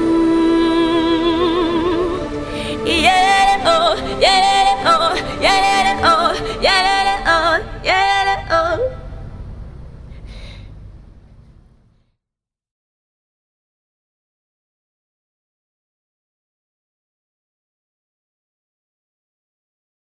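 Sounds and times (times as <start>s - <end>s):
person singing wordless phrases: 0.0s - 9.0s
backing music: 0.0s - 9.3s.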